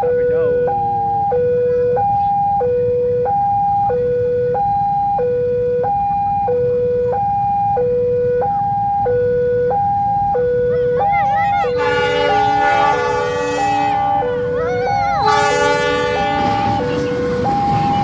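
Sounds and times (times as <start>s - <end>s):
level-crossing two-tone alarm: 0.0s - 18.0s
idling road traffic rumble: 10.2s - 18.0s.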